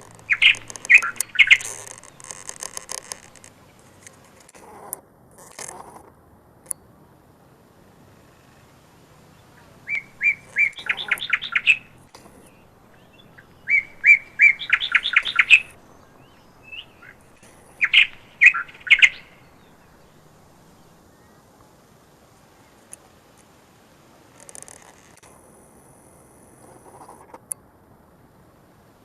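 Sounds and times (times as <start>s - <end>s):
songbird singing: 0.0s - 29.0s.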